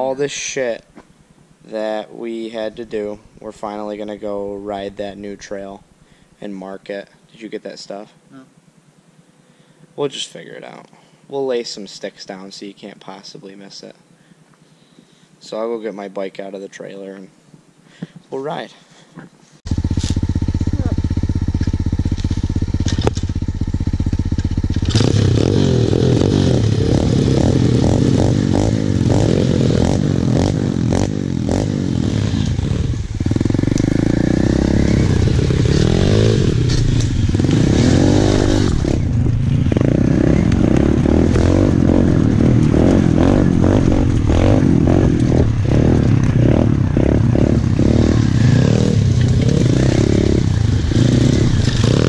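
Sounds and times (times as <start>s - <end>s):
motorbike engine idling and revving: 19.7s - 52.0s
bike clattering over ground: 49.1s - 49.7s.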